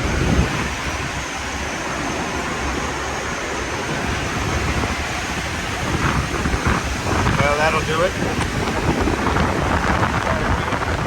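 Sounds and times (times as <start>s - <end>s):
air handler fan rushing: 0.0s - 11.0s.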